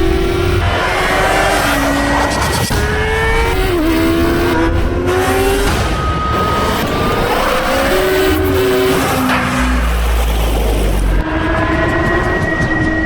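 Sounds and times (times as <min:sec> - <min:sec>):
motorbike engine accelerating: 0:00.0 - 0:13.0.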